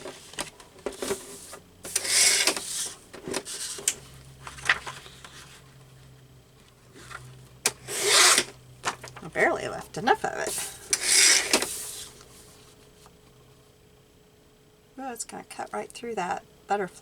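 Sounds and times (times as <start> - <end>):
paper rustling while cut: 1.0 - 3.9, 7.8 - 9.0, 11.0 - 12.1
faint low hum: 11.6 - 17.0.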